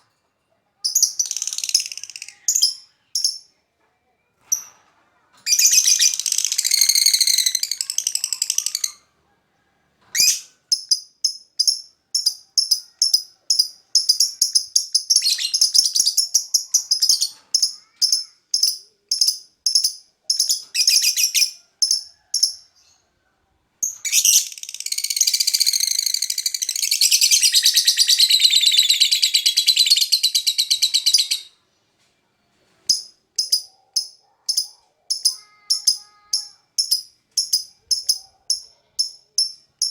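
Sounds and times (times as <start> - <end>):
bird chirping and trilling: 5.5 - 9.0, 10.2 - 22.6, 23.8 - 31.6, 32.9 - 39.9.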